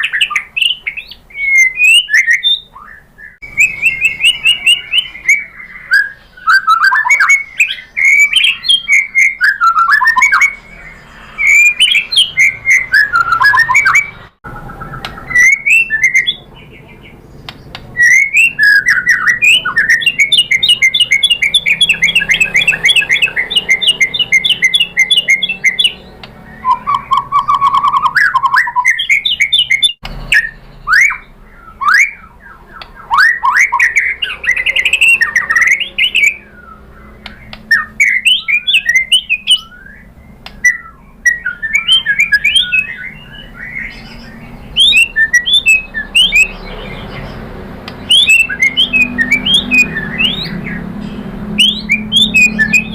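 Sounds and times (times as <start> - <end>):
bird singing varied song: 0.0 - 52.9.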